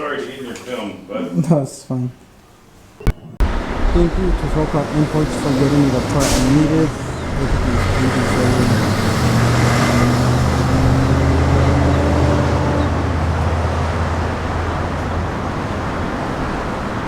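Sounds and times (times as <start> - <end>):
traffic noise: 3.0 - 17.0
vehicle engine humming: 3.4 - 17.0.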